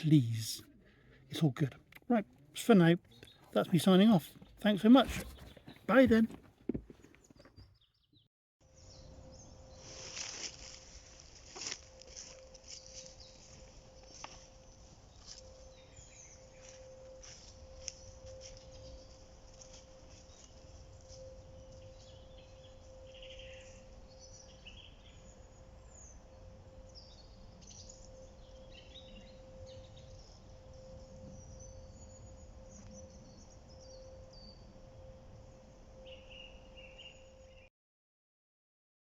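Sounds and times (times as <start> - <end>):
bird chirps: 0.0 - 10.1, 11.6 - 37.7
faint steady hum: 8.8 - 37.7.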